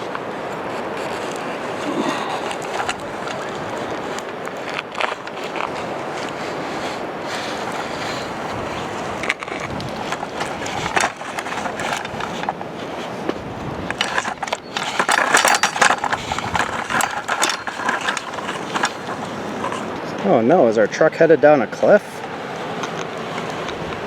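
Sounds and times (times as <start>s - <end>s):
toy truck scraping through gravel: 0.6s - 13.2s, 13.8s - 19.9s.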